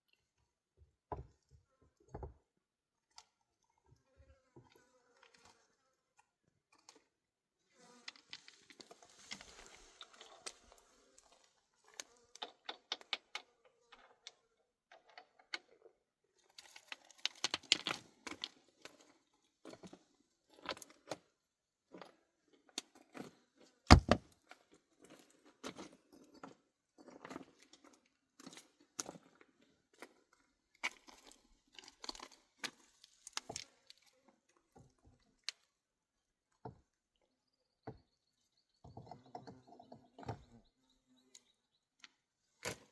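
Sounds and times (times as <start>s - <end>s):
clicks and knocks of hard objects: 23.9s - 24.2s
heavy thump: 23.9s - 24.2s.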